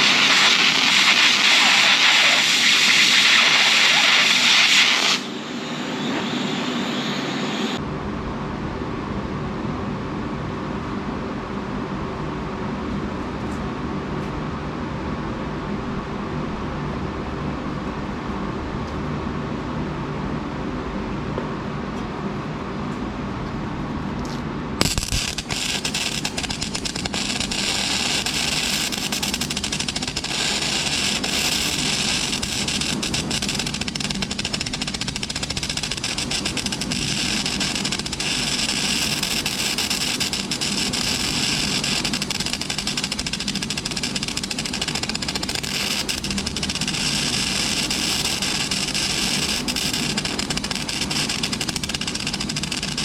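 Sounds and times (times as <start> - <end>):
welding arc crackling: 0.0 - 5.4, 24.8 - 53.0
welder humming: 0.0 - 7.8, 24.8 - 53.0.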